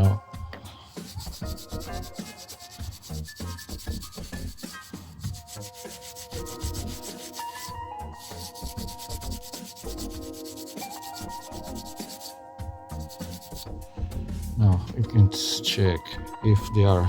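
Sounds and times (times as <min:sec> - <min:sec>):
scraping on metal filter basket: 0:01.0 - 0:13.8
held musical chords: 0:12.4 - 0:17.0.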